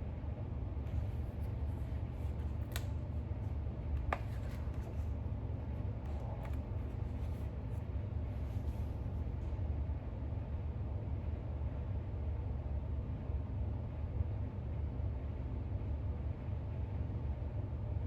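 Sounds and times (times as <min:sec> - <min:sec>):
low room hum: 0:00.0 - 0:18.0
book pages turning: 0:00.9 - 0:03.1, 0:03.9 - 0:05.2, 0:05.8 - 0:09.0.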